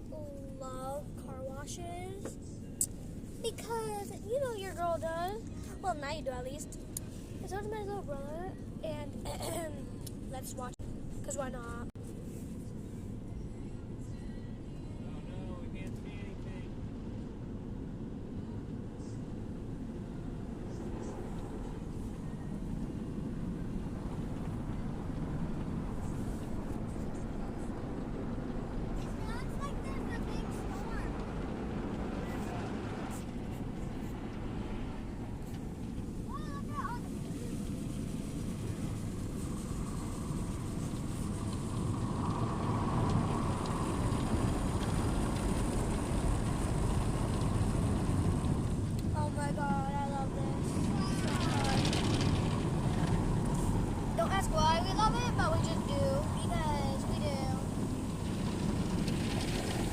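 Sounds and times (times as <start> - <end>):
car wash machinery rumble: 15.0 - 59.9.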